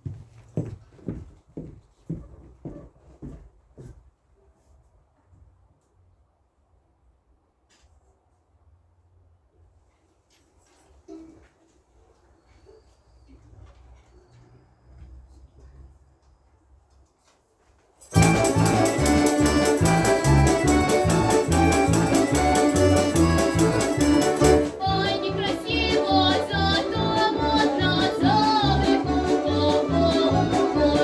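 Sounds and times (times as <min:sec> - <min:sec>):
folk instrument orchestra playing: 0:18.1 - 0:31.0
pulsing bass: 0:18.2 - 0:31.0.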